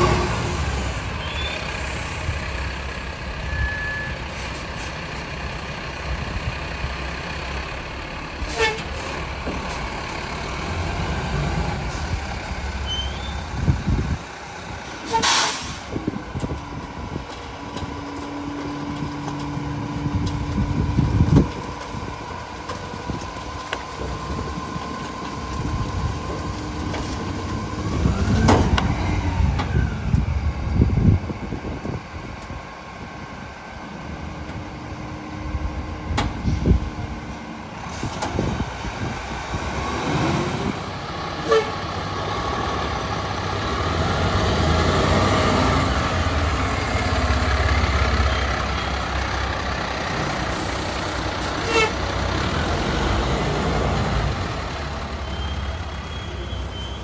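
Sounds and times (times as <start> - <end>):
garbage truck diesel engine running: 0.0 - 57.0.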